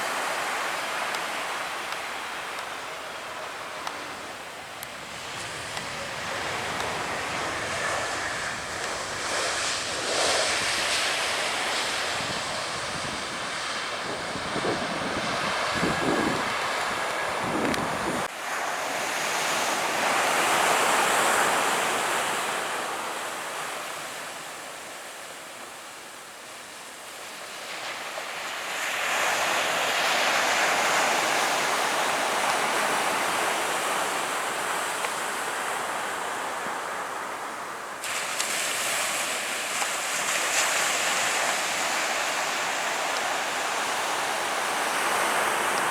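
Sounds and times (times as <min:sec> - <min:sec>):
surf washing on beach: 0:00.0 - 0:45.9
wind rumbling on microphone: 0:03.7 - 0:18.3.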